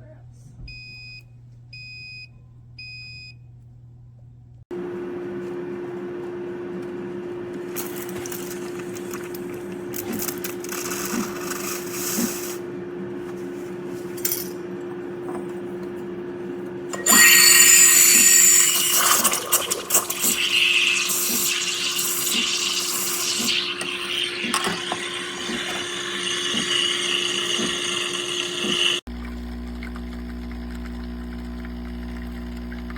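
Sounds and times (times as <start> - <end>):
espresso machine pump hum: 4.7 - 14.0, 14.7 - 32.9
loud hissing and sputtering: 17.1 - 29.0.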